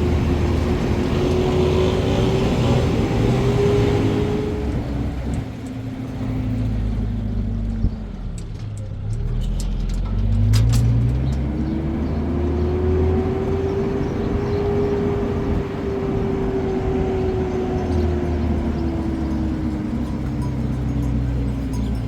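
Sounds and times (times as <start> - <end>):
engine running under load: 0.0 - 22.0.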